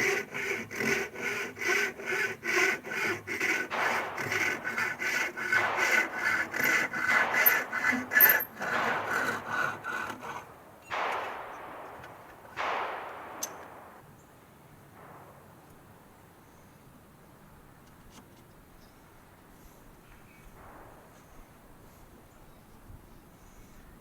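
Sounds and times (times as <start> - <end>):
hand saw cutting wood: 0.0 - 10.6.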